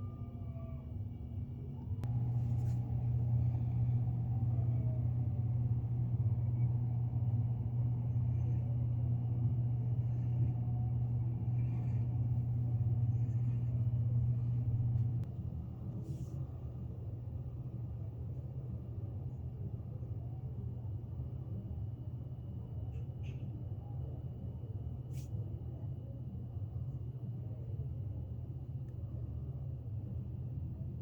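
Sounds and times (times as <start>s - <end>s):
low rumble: 0.0s - 20.2s.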